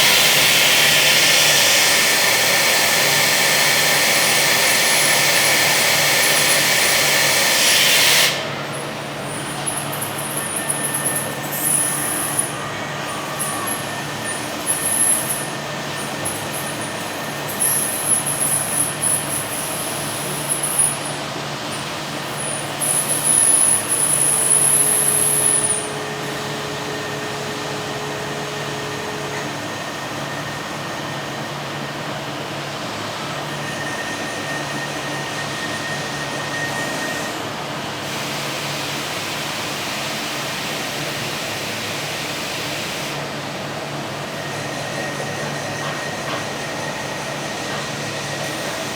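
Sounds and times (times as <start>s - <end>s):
steady machinery noise: 0.0s - 48.9s
loud high-pitched hissing: 22.3s - 27.0s.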